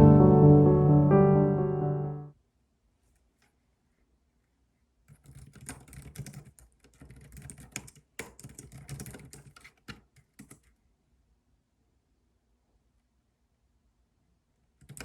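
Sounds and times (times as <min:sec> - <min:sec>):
typing on computer keyboard: 0:05.1 - 0:10.8, 0:14.8 - 0:15.0.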